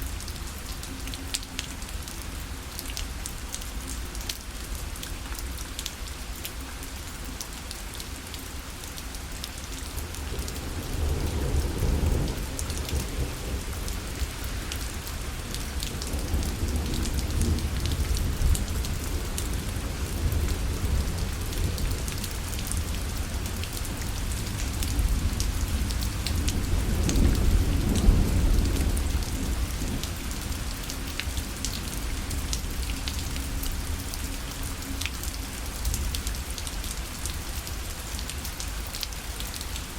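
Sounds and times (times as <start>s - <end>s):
rain pattering on a parasol: 0.0s - 39.9s
low rolling thunder: 10.4s - 30.7s.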